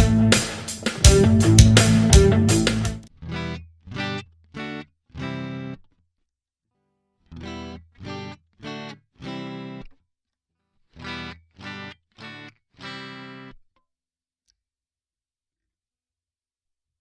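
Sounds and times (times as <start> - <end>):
electric guitar plucked notes: 0.0 - 5.8, 7.4 - 9.8, 11.0 - 13.5.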